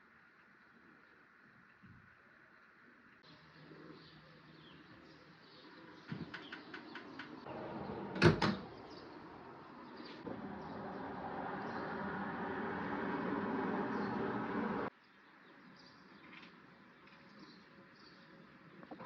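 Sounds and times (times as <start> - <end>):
cupboard door shutting: 7.5 - 8.7.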